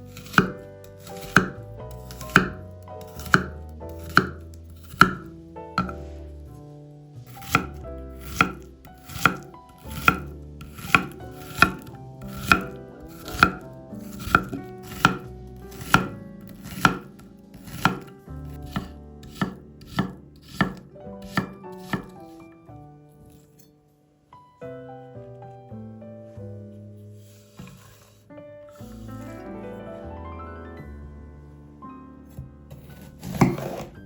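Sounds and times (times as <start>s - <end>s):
knife chopping on cutting board: 0.1s - 6.2s, 7.3s - 22.4s, 27.5s - 28.1s, 32.7s - 34.0s.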